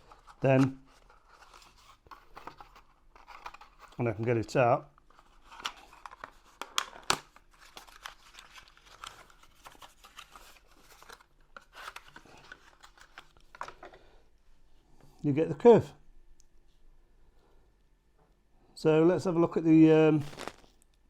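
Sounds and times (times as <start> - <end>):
packaging crinkling: 5.1 - 13.9, 20.1 - 21.0.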